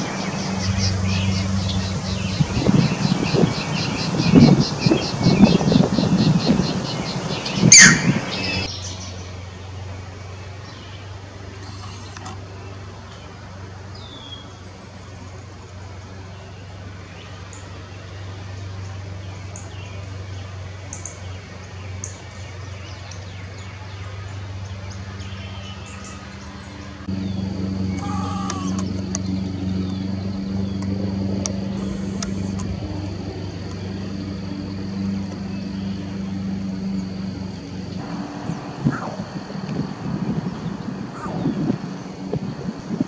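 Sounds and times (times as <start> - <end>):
high bird chirps: 0.0 - 9.2
steady low hum: 0.0 - 43.0.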